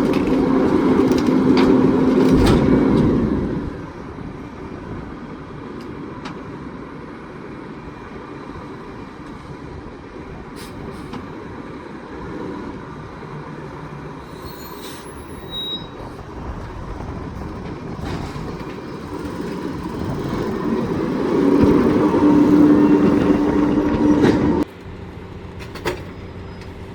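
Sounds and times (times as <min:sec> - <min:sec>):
garbage truck running: 0:00.0 - 0:26.9
high squeaks: 0:14.3 - 0:16.2.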